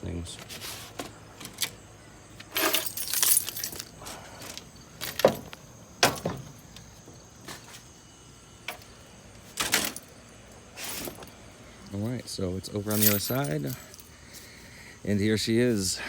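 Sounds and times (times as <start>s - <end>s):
keys jingling: 2.4s - 6.6s, 9.6s - 11.4s, 12.8s - 14.2s.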